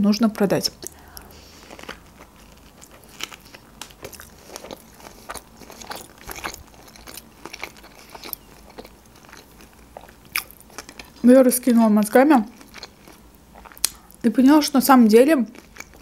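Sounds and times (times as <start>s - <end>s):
person chewing with mouth clicks: 0.7s - 11.2s, 12.5s - 14.2s, 15.5s - 16.0s.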